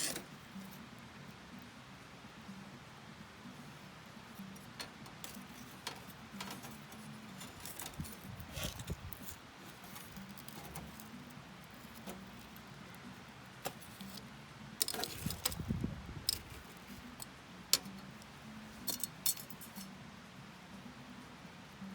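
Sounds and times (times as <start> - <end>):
campfire crackling: 3.6 - 15.6.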